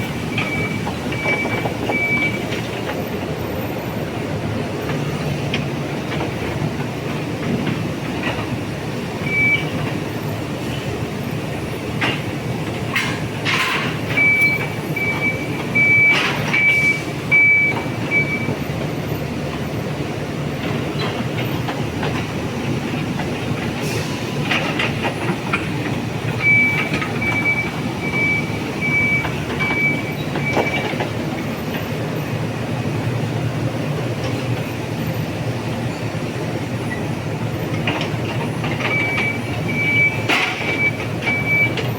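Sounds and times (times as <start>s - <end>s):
high-pitched warning beeps: 0.2s - 2.6s, 9.2s - 9.8s, 14.1s - 18.6s, 26.4s - 31.0s, 38.8s - 41.9s
sharp knocks and clanks: 12.0s - 16.8s, 37.7s - 41.9s.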